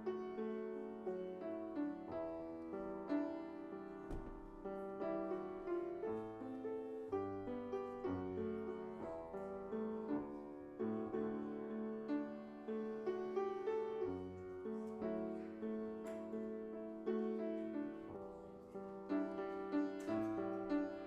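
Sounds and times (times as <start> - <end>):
slow gentle piano piece: 0.0 - 21.0
small knock: 4.1 - 4.6.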